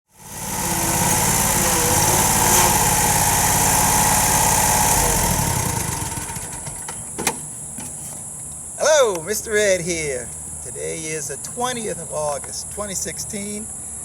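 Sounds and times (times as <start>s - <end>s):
lawn mower engine running: 0.1s - 7.1s.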